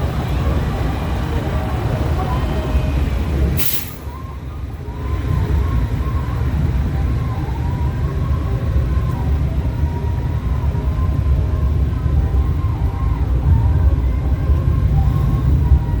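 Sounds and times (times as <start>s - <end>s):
short hiss: 3.6s - 4.2s.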